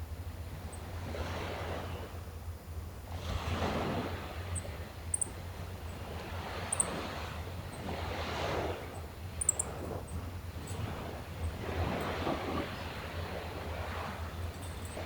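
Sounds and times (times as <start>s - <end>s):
sea waves washing ashore: 3.1s - 15.0s
high bird chirps: 9.4s - 9.7s.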